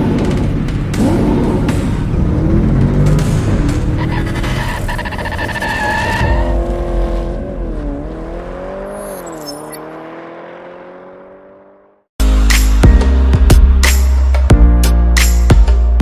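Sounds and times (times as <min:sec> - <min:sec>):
car engine revving: 0:00.0 - 0:12.1
tyre squeal: 0:04.0 - 0:06.9, 0:09.0 - 0:09.8.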